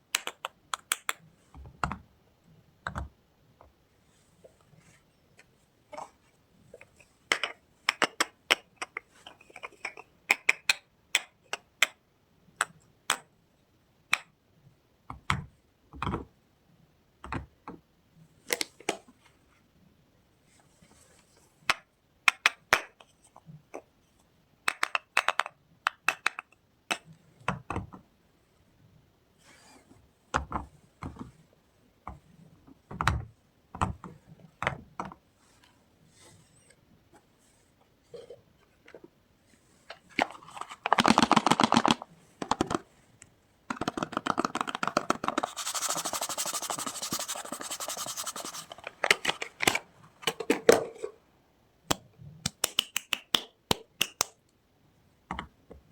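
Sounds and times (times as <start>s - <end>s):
packaging crackling and clicking: 40.6s - 42.8s.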